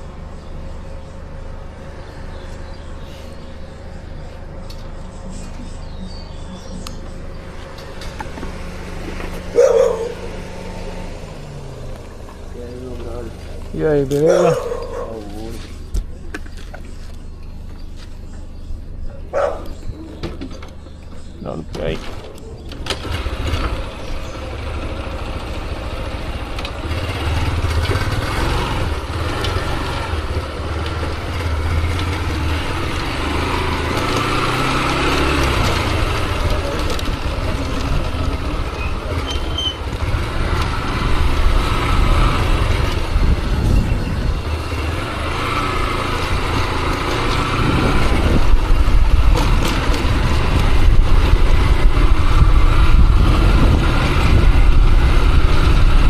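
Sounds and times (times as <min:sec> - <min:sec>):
motorcycle engine running: 0:00.0 - 0:20.0, 0:20.8 - 0:56.0
wind rumbling on microphone: 0:41.0 - 0:44.9, 0:47.4 - 0:56.0.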